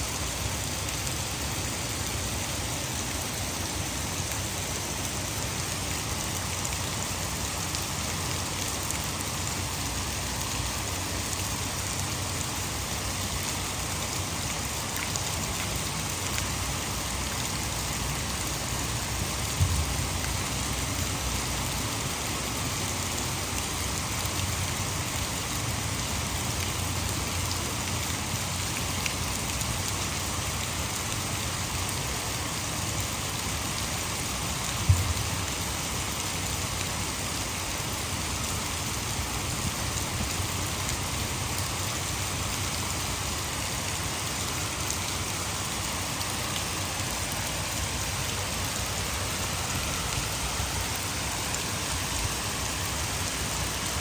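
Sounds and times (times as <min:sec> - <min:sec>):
heavy rain: 0:00.0 - 0:54.0
water rushing over dam: 0:00.0 - 0:54.0
brief thump: 0:19.6 - 0:19.9, 0:34.9 - 0:35.2.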